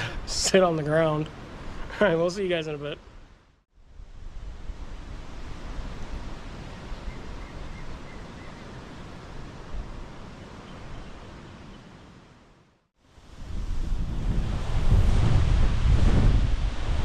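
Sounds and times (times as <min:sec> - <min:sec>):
wind buffeting microphone: 0:13.2 - 0:17.0.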